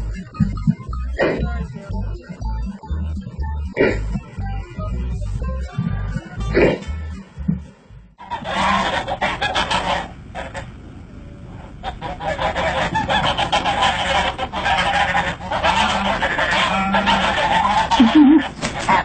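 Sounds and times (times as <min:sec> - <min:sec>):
flock of birds honking: 0:08.2 - 0:10.7, 0:11.7 - 0:19.0.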